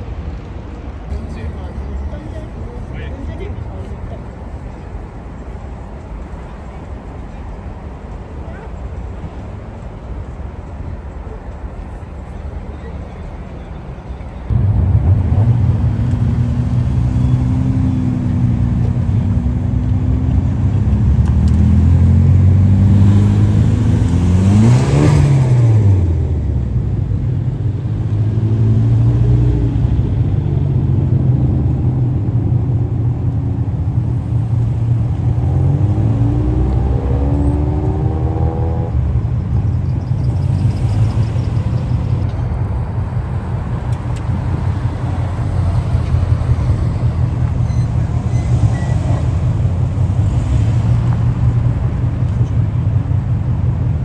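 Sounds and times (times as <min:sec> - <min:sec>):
car engines rumbling: 0:00.0 - 0:54.0
car engine revving: 0:14.5 - 0:54.0.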